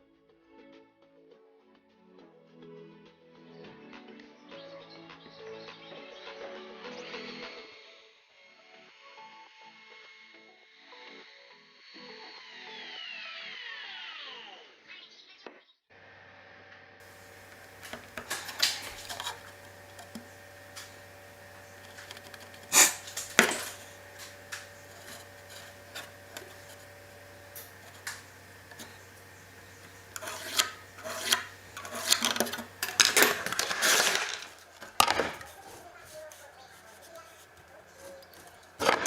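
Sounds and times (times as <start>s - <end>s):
faint steady hum: 16.0s - 39.0s
wooden parts knocking: 17.0s - 35.5s
clattering and rubbing: 17.0s - 39.0s.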